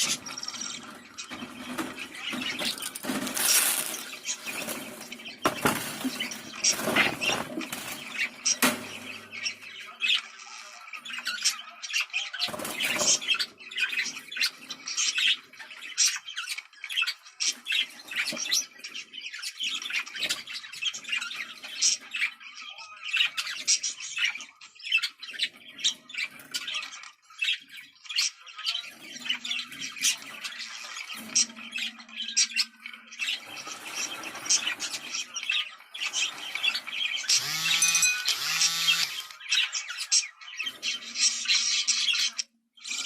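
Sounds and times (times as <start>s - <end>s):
loud rustling: 0.0s - 9.3s
budgerigars chattering: 0.0s - 43.0s.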